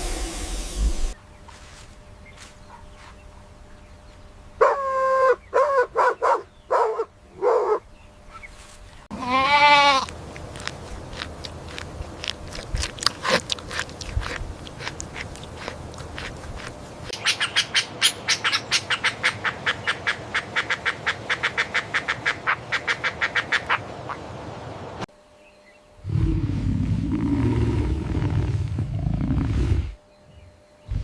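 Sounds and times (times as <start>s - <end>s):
goat bleating: 9.1s - 10.2s.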